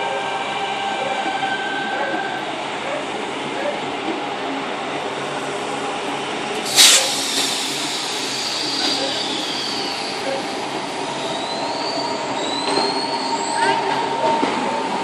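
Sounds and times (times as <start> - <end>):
electric train rolling: 4.0 - 15.0
high-pitched wheel squeal: 11.2 - 14.0.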